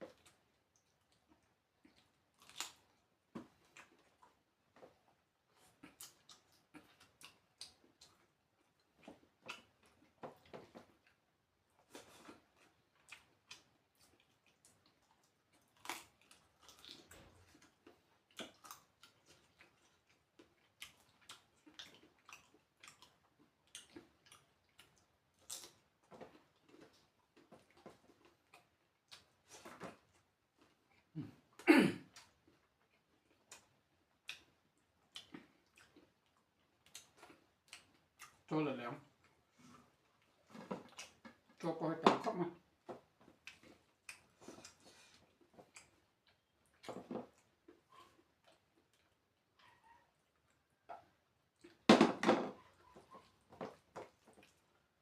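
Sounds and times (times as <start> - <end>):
wet chewing and mouth smacks: 0.0 - 31.1, 32.1 - 41.6, 42.8 - 51.9, 52.6 - 55.0.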